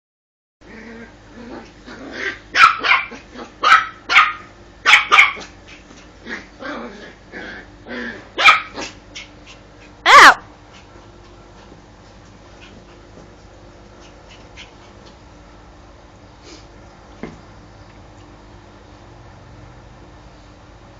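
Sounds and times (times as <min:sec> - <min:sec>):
dog yelping: 0:02.2 - 0:05.6, 0:08.4 - 0:09.3, 0:10.0 - 0:10.4
dog barking: 0:02.6 - 0:05.6, 0:08.4 - 0:09.0.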